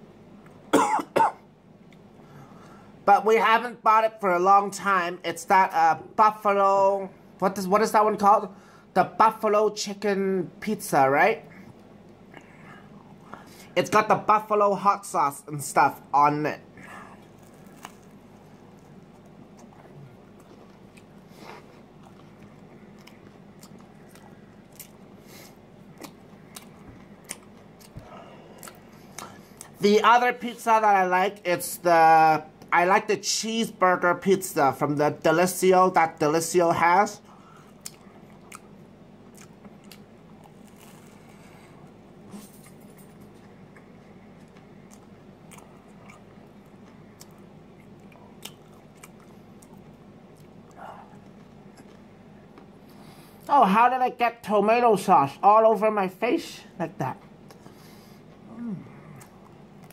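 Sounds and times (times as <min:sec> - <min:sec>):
low steady hum: 0:00.0 - 0:59.9
person chewing: 0:16.8 - 0:29.8, 0:37.3 - 0:53.5, 0:57.2 - 0:59.9.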